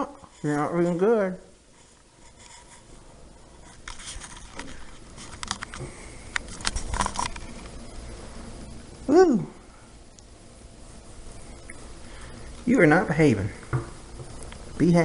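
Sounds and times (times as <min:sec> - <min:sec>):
rustling and scratching: 0:00.0 - 0:07.9.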